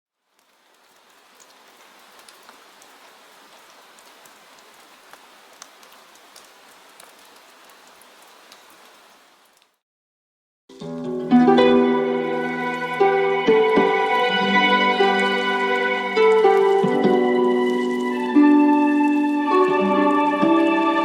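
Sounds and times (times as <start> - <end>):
plucked-string music: 10.7 - 21.0
water drops pattering: 12.5 - 21.0.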